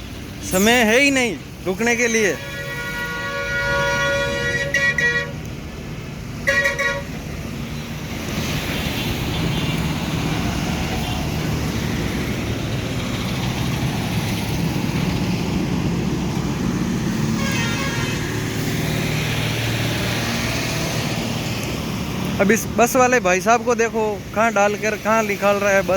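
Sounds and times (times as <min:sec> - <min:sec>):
road traffic engines: 0:00.0 - 0:25.9
vehicle horn blast: 0:02.1 - 0:05.4, 0:06.4 - 0:07.2, 0:17.4 - 0:18.4.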